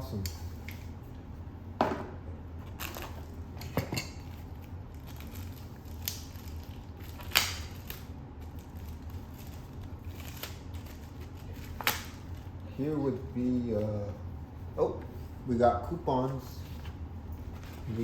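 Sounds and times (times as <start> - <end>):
packaging crinkling and rustling: 4.3 - 12.6.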